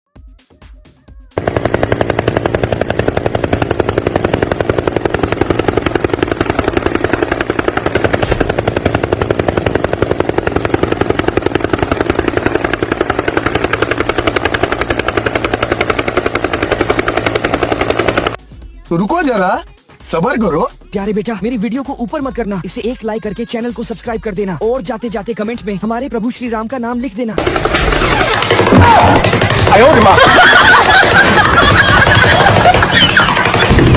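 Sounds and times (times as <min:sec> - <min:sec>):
helicopter rotor blades chopping: 0:01.3 - 0:18.4, 0:27.4 - 0:33.9.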